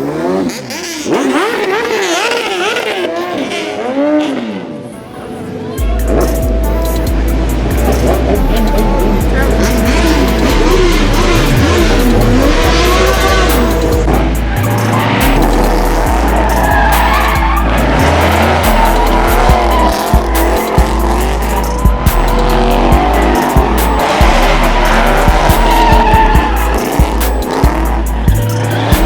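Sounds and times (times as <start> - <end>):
car tyres squealing: 0.0 - 29.0
car engine running hard: 5.8 - 29.0.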